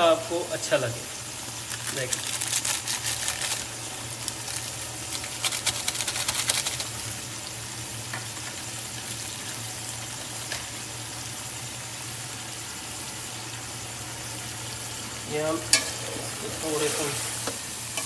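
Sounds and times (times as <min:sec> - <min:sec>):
food sizzling in oil: 0:00.0 - 0:18.0
sharp crackles: 0:01.6 - 0:07.0.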